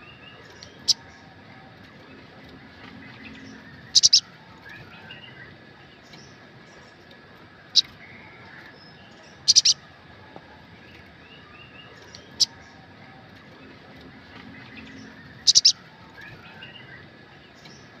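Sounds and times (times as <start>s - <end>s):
faint background bird chirping: 0.0s - 18.0s
bird sharp high chip calls: 3.9s - 4.3s, 9.4s - 9.8s, 14.8s - 15.9s.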